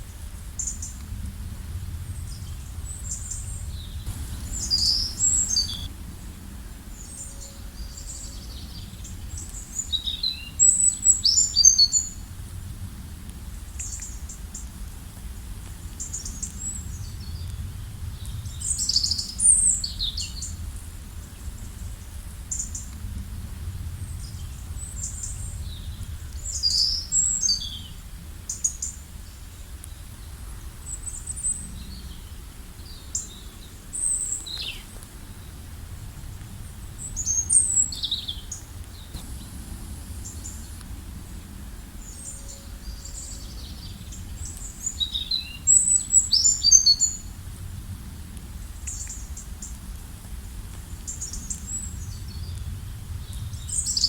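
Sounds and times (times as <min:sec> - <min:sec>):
steady low rumble: 0:00.2 - 0:09.9, 0:12.1 - 0:28.4, 0:31.5 - 0:54.0
songbirds chirping: 0:02.1 - 0:12.3, 0:23.8 - 0:47.4.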